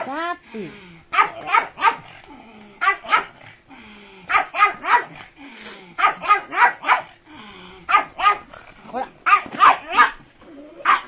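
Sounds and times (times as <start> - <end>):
dog barking: 1.1 - 2.1, 2.8 - 3.4, 4.3 - 5.2, 6.0 - 7.1, 7.9 - 8.5, 9.2 - 10.2.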